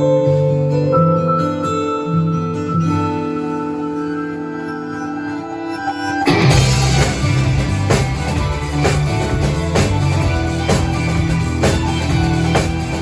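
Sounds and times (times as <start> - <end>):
pop-rock song: 5.2 - 13.0
drum kit playing along: 6.2 - 13.0.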